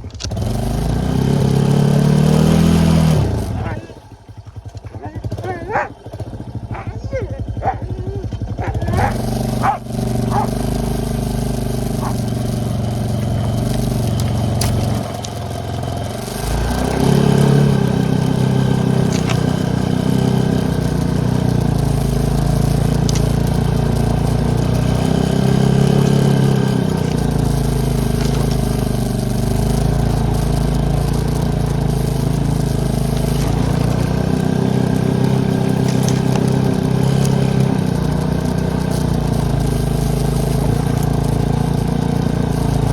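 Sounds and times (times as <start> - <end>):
atv engine running: 0.0 - 42.9.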